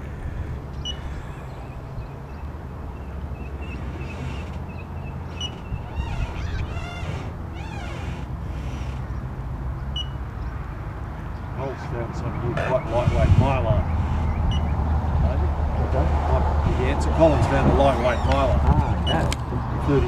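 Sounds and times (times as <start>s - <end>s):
small birds chirping: 0.0s - 10.6s, 11.3s - 15.9s
wind rumbling on microphone: 0.0s - 10.6s, 11.3s - 20.0s.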